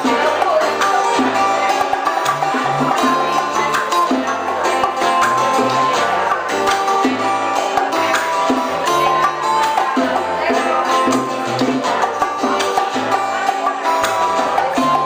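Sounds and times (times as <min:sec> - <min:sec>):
bass line: 0:00.0 - 0:15.0
percussion: 0:00.0 - 0:15.0
plucked guitar: 0:00.0 - 0:15.0.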